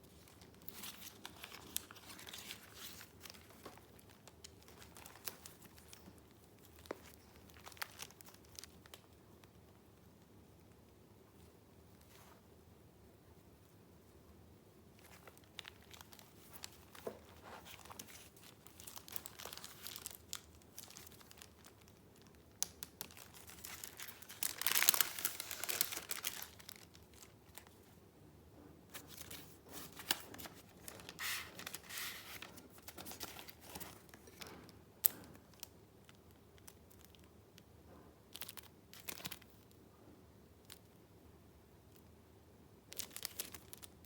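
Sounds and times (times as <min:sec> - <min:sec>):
paper rustling and crinkling: 0:00.0 - 0:09.1, 0:15.0 - 0:27.9, 0:28.9 - 0:37.2.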